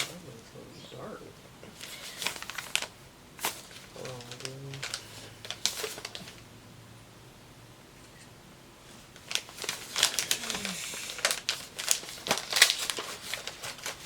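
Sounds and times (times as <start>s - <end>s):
gift-wrap paper crinkling: 1.7s - 6.4s, 9.2s - 14.0s.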